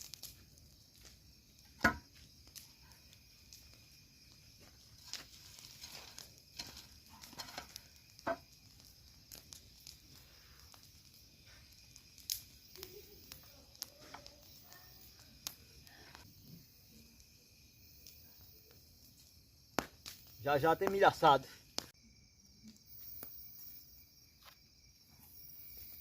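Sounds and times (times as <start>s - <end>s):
campfire embers crackling: 0.0s - 26.0s
night insects droning: 0.0s - 26.0s.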